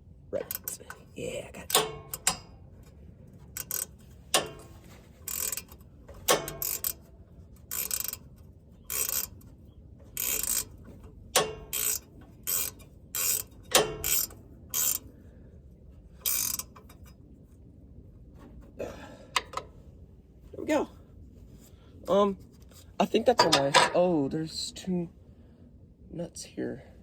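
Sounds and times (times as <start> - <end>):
ratchet wrench clicking: 0.4 - 1.0, 1.6 - 2.5, 3.5 - 9.5, 10.1 - 10.8, 11.4 - 15.1, 16.2 - 17.1.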